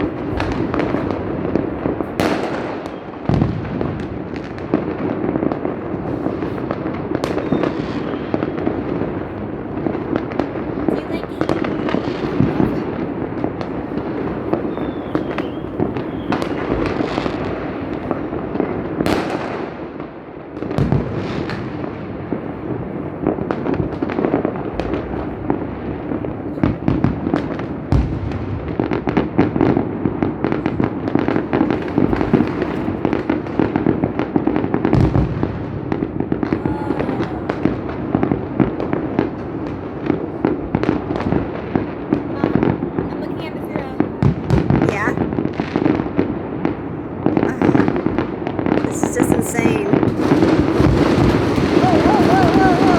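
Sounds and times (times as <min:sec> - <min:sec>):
fireworks cracking and banging: 0:00.0 - 0:52.9.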